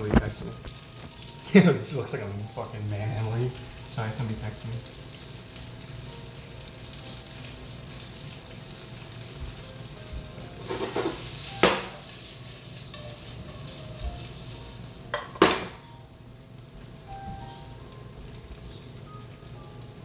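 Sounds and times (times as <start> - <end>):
food sizzling in oil: 0.0 - 20.0
utensil striking a pan: 10.6 - 14.4, 15.1 - 15.9.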